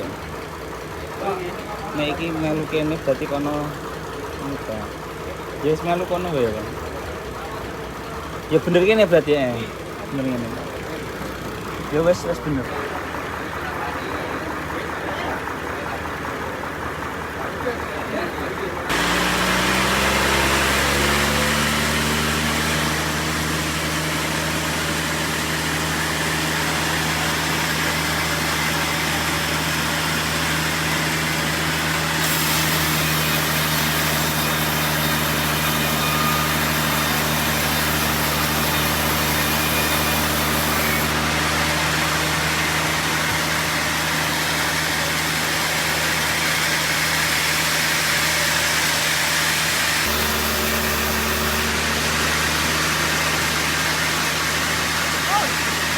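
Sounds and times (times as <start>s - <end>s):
sawmill engine hum: 0.0s - 55.9s.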